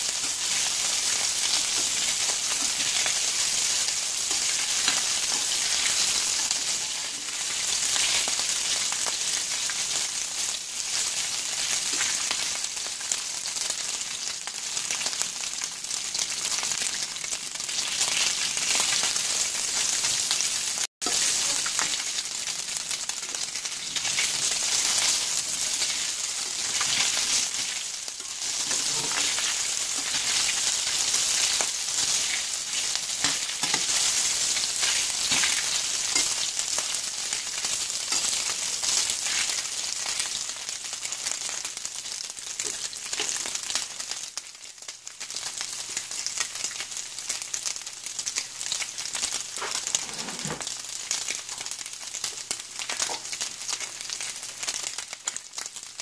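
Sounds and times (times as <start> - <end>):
meatballs sizzling in a skillet: 0.0 - 56.0
spatula turning meatballs: 21.0 - 40.0.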